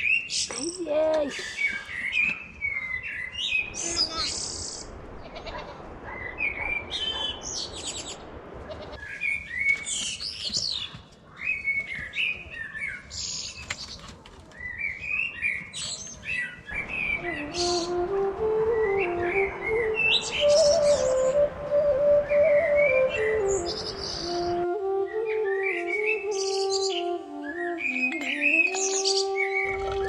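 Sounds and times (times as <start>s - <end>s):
birds chirping and singing: 0.0s - 5.2s, 9.0s - 30.0s
steady background hiss: 16.7s - 28.0s.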